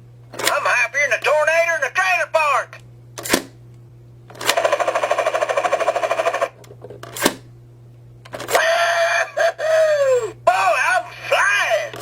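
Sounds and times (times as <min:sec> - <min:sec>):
toy helicopter rotor sound effect: 0:04.4 - 0:06.6
pitched electronic toy sound: 0:04.6 - 0:06.6.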